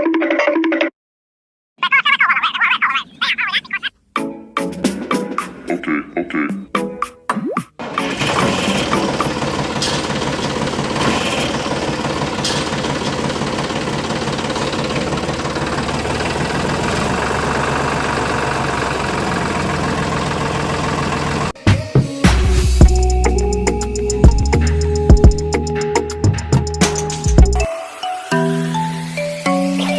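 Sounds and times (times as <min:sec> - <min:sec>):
machine knocking rattle: 0:07.8 - 0:21.5.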